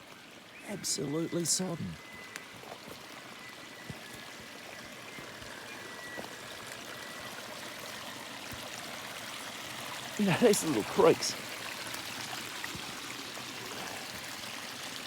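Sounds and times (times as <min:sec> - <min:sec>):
creek running: 0:00.0 - 0:15.0.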